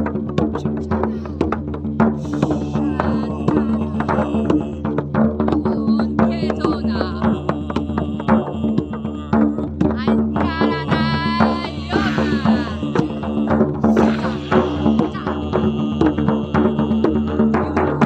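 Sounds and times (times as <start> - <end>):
hand-drum strikes: 0.0 - 18.0
low drone: 2.2 - 5.1, 11.9 - 17.4.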